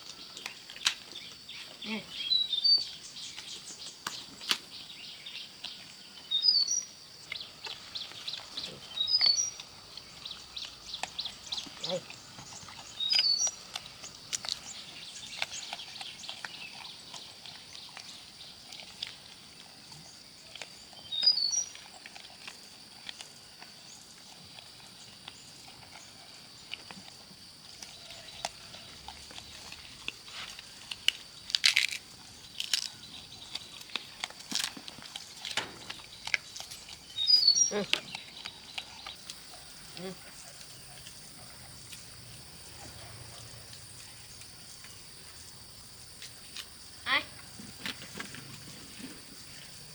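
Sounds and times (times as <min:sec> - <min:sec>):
small crunching clicks: 0:00.0 - 0:01.4, 0:12.5 - 0:20.8, 0:26.7 - 0:42.2
bird chirp: 0:00.1 - 0:18.8, 0:20.0 - 0:21.8, 0:35.2 - 0:45.8.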